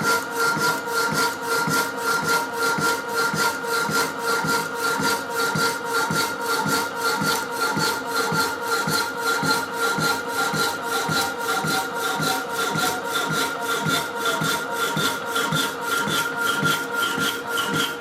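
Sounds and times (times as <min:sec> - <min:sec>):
hacksaw blade rasping on metal: 0:07.3 - 0:18.0.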